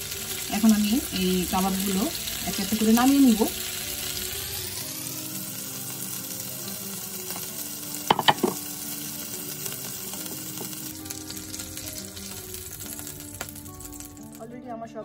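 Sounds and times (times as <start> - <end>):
kebabs sizzling in oil: 0.0 - 14.4.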